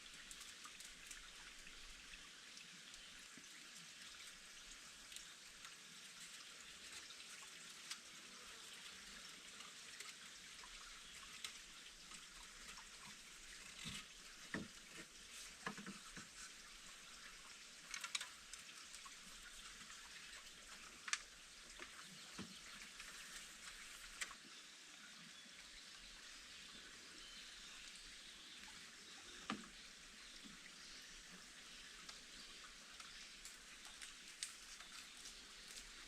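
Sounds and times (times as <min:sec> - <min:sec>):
light rain pattering: 0:00.0 - 0:36.0
drips and taps: 0:09.6 - 0:24.4, 0:28.6 - 0:36.0.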